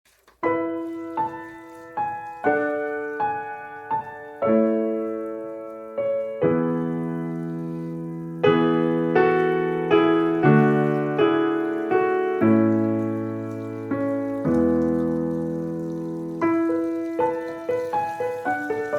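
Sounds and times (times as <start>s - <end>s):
gentle piano melody: 0.3s - 18.9s.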